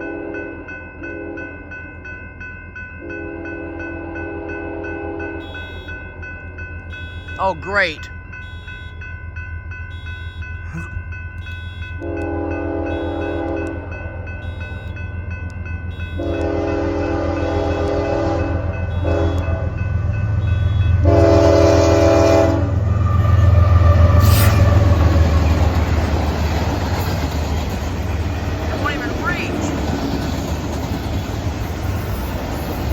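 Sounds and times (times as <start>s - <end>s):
train rail noise: 0.0s - 32.9s
train horn: 1.1s - 1.6s, 3.0s - 6.1s, 11.4s - 13.8s, 14.4s - 15.0s, 15.9s - 25.6s
high ringing tone: 5.3s - 12.1s, 12.8s - 16.3s
locomotive engine rumble: 12.0s - 32.9s.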